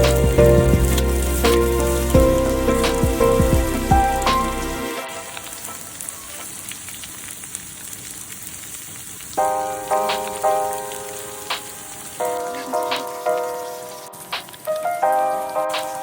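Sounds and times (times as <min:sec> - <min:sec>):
music of plucked notes: 0:00.0 - 0:05.8
food sizzling in a pan: 0:00.0 - 0:16.0.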